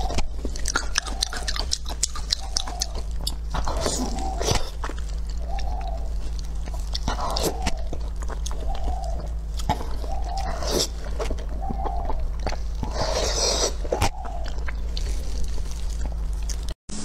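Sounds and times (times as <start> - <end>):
person chewing food: 0.0 - 16.8
steady low hum: 0.0 - 17.0
wet mouth smacks and clicks: 0.6 - 5.7.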